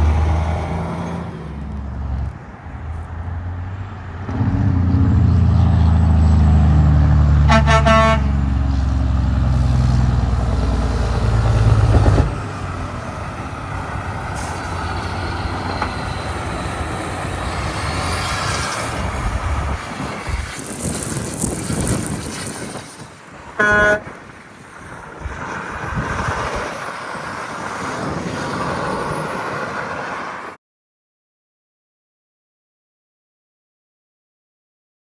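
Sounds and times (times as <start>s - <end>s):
traffic noise: 0.0s - 30.6s
truck diesel engine passing: 0.0s - 30.6s
truck horn toot: 7.4s - 9.0s, 23.6s - 24.2s.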